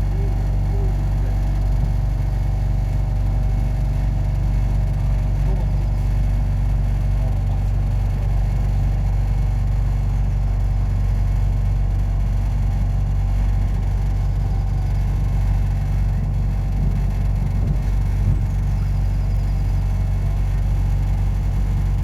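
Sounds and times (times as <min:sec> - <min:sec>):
tram wheels rumbling: 0:00.0 - 0:10.4, 0:13.2 - 0:22.0
faint steady whine: 0:13.5 - 0:22.0.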